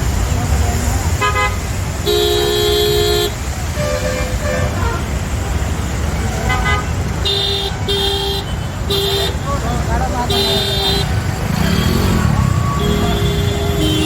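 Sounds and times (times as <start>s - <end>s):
passing traffic rumble: 0.0s - 14.0s
vehicle horn blasts: 6.5s - 9.5s, 10.3s - 12.2s, 12.8s - 14.0s.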